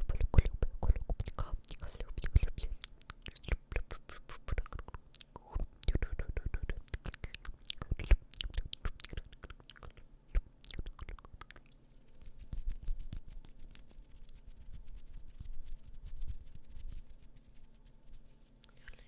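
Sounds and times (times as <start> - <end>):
mouth clicking sounds: 0.0 - 11.8.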